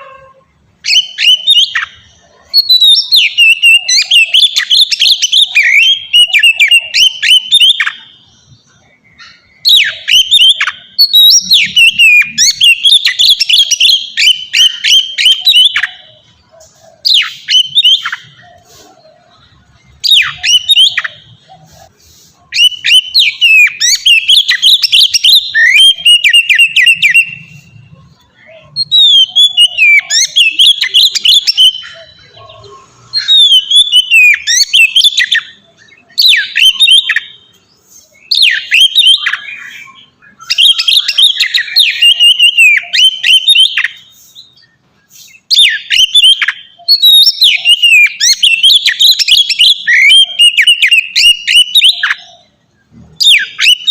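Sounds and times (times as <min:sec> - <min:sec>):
bird singing whistled phrases: 0:00.0 - 0:53.9.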